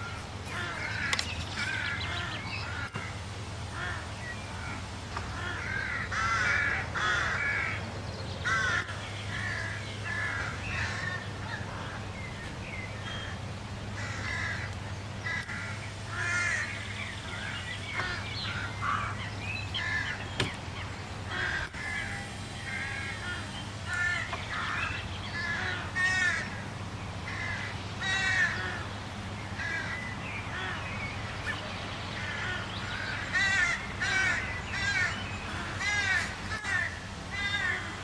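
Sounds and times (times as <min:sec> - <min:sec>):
birds cawing: 0:00.0 - 0:38.0
steady low hum: 0:00.0 - 0:38.0.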